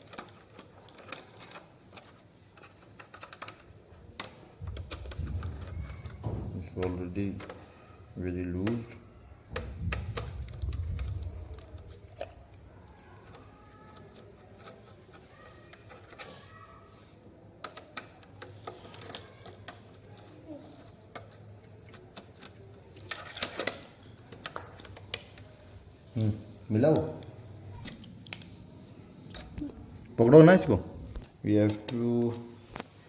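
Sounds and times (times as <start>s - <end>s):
hand tools clicking on plastic: 0.0s - 17.0s, 17.6s - 25.8s.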